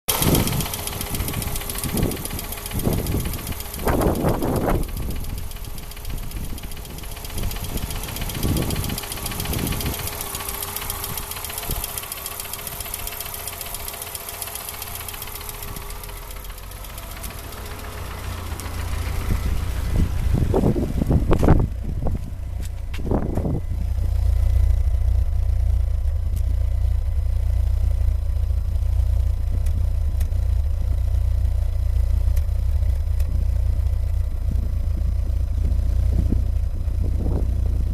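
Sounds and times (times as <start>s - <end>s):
fast metallic ticking: 0.1s - 22.5s
car engine idling unevenly: 0.1s - 37.9s.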